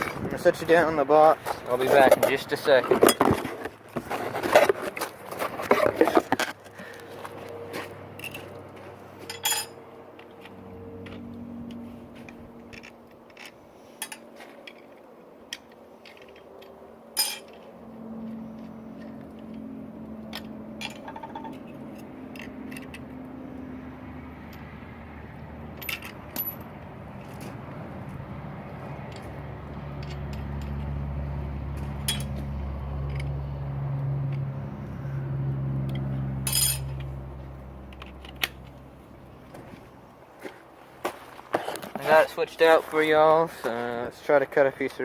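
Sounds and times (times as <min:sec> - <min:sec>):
metallic clink: 0:09.3 - 0:09.8, 0:17.2 - 0:17.6, 0:32.0 - 0:32.4, 0:36.4 - 0:37.1.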